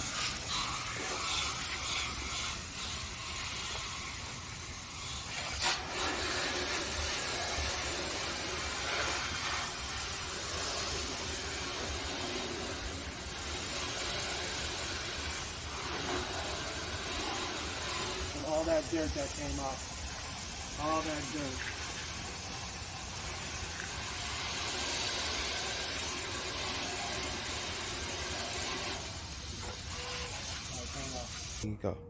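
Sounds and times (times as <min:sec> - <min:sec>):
water spraying on coil: 0:00.0 - 0:31.7.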